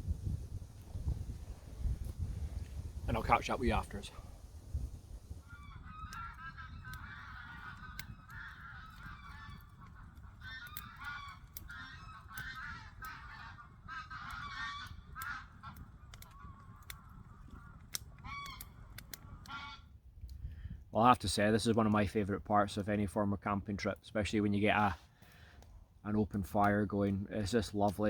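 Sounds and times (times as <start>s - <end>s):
campfire crackling: 0.0s - 28.0s
geese honking: 5.4s - 19.9s.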